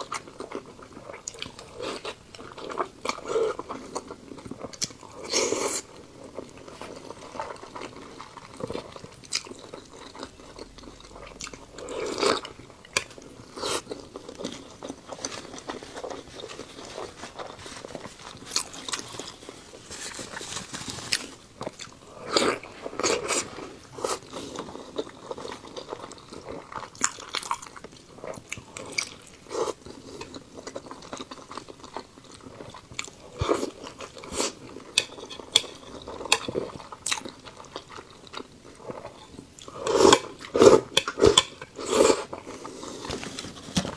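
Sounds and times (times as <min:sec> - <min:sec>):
person chewing food: 0:00.0 - 0:43.9
crisp crunches: 0:13.6 - 0:24.2.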